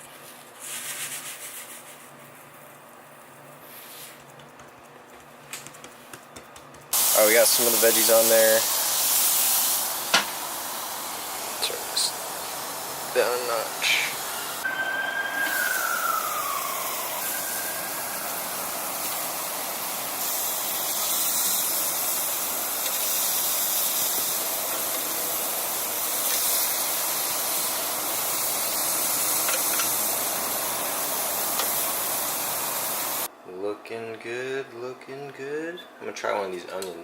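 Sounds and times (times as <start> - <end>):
steaks and vegetables sizzling in pan: 7.0 - 33.3
falling whistle: 13.9 - 19.3.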